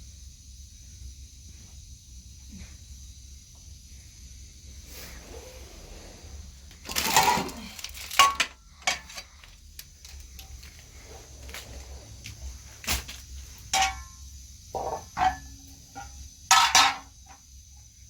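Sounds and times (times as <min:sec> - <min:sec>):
scraping rustle: 0:04.8 - 0:13.6
hard objects knocking and clattering: 0:06.8 - 0:09.3, 0:14.8 - 0:17.1.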